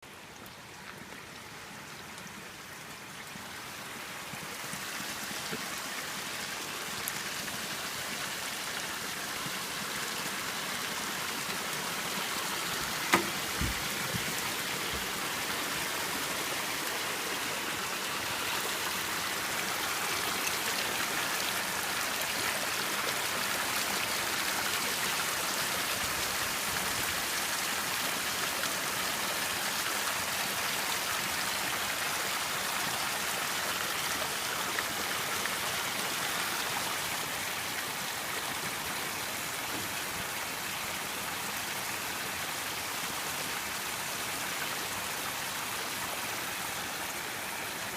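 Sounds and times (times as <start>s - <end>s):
waterfall and stream running: 0.0s - 47.9s
knock with low thud: 13.1s - 14.3s.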